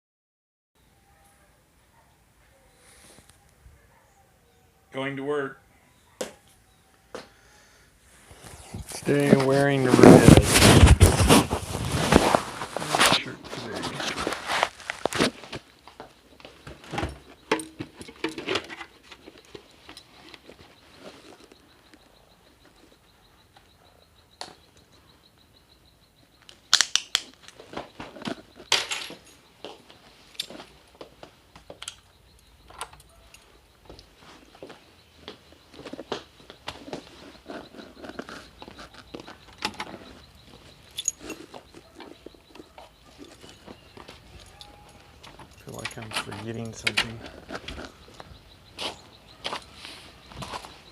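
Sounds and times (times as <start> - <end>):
handling clicks and knocks: 12.1 - 22.9, 26.8 - 34.1, 35.4 - 49.7.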